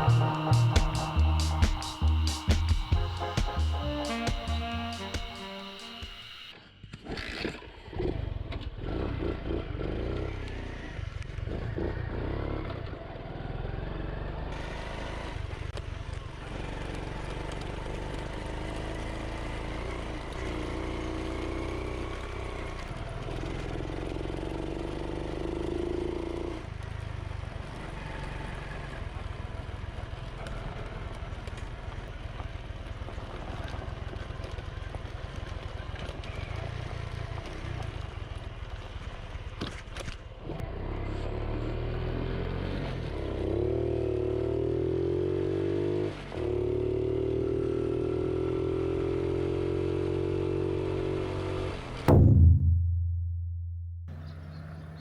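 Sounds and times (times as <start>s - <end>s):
small motorcycle engine running: 8.1s - 51.7s.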